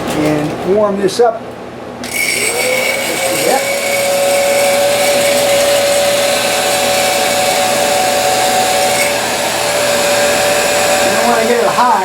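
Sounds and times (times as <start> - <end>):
heat gun blowing hot air: 2.0 - 12.0.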